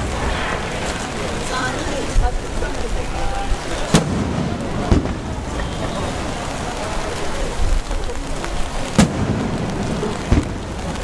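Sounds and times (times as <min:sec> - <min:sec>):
distant firework bangs: 0:00.0 - 0:02.7, 0:03.6 - 0:06.8, 0:08.9 - 0:11.0
rain hissing: 0:00.0 - 0:11.0.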